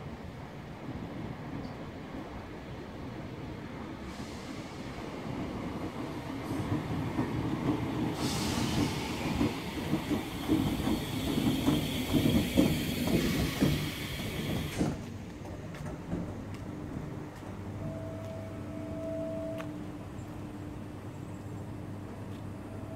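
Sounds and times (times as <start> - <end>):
train rumbling past: 0.0 - 22.9
rising hiss: 8.0 - 15.0.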